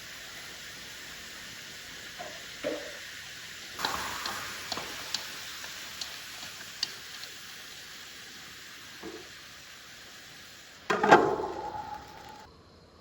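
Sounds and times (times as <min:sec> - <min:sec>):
food sizzling in hot oil: 0:00.0 - 0:12.5
crackling pops: 0:03.7 - 0:09.4.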